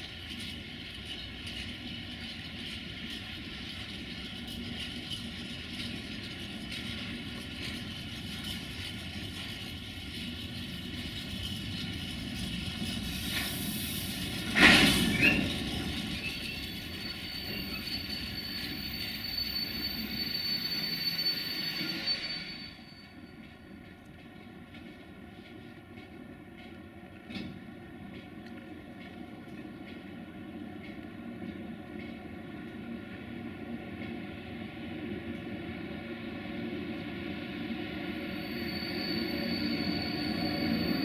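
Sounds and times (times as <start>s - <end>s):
train rumbling on rails: 0.0s - 41.0s
thin high whine: 36.3s - 41.0s.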